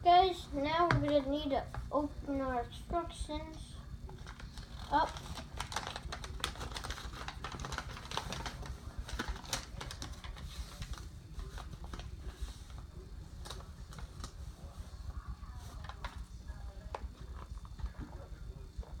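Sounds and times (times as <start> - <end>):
paper crinkling: 4.1 - 16.2.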